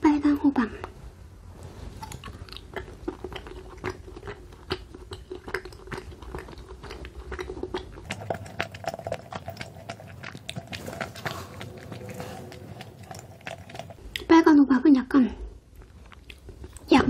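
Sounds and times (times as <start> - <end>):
mouth chewing gummy candy: 2.0 - 14.3, 15.7 - 17.0.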